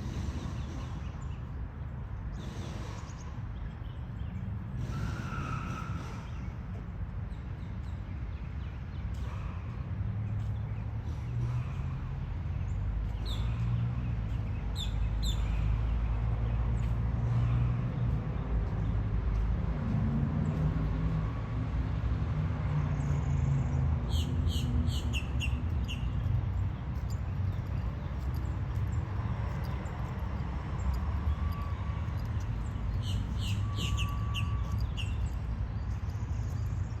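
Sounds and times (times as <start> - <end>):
bird chirping: 30.8 - 37.0.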